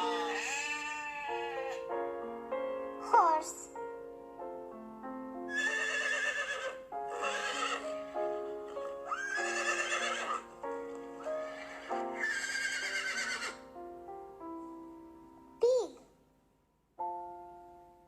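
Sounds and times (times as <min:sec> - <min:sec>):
horse whinnying: 0:00.0 - 0:01.8, 0:05.5 - 0:10.5, 0:11.4 - 0:13.6
background music: 0:00.0 - 0:18.0.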